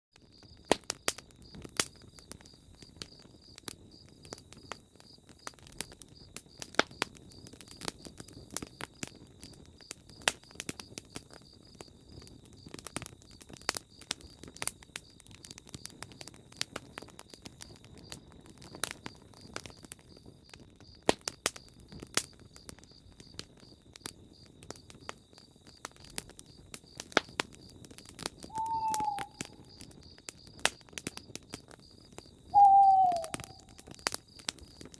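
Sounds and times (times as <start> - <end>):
campfire crackling and popping: 0.2 - 34.9
bird hooting: 28.5 - 29.6, 32.6 - 33.6.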